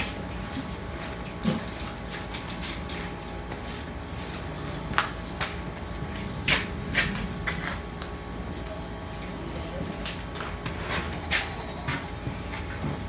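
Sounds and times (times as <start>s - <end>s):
faint hum: 4.2s - 13.0s.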